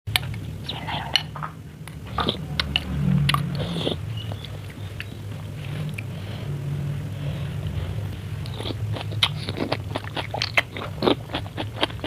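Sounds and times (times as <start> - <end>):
wet chewing mouth sounds: 0.1 - 6.4, 7.2 - 12.0
low hum: 0.1 - 11.3.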